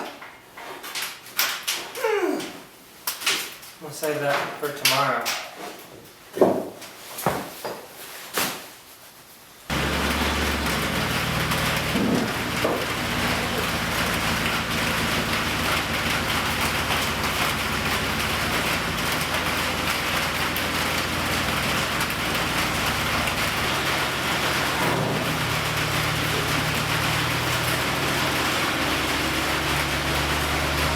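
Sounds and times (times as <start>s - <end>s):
welder crackling: 9.7s - 30.9s.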